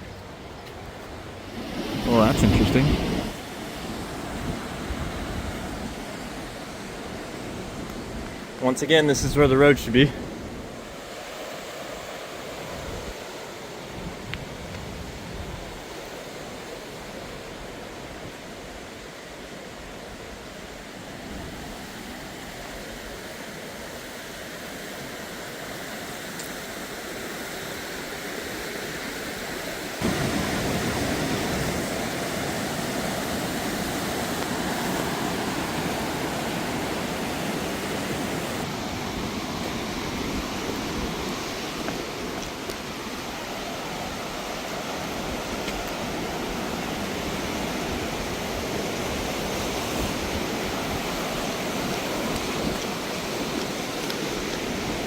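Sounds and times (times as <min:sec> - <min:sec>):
water rushing over rocks: 0:01.3 - 0:10.0, 0:22.2 - 0:55.0.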